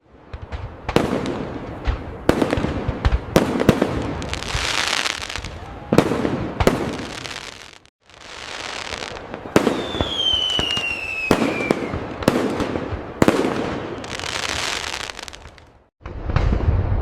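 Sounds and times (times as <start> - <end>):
fireworks bursting and crackling: 0.1 - 17.0
whistling firework falling tone: 0.3 - 17.0.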